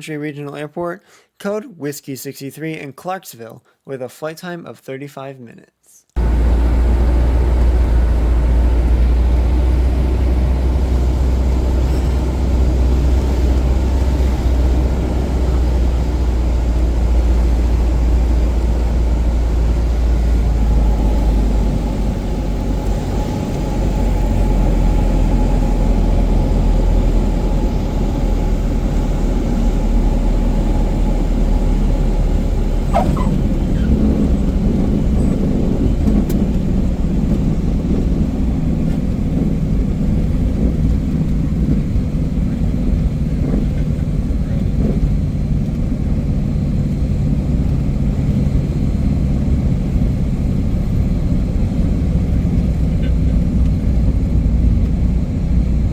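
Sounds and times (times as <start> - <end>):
airplane propeller engine drone: 6.2 - 55.9
sliding tone: 32.5 - 35.4.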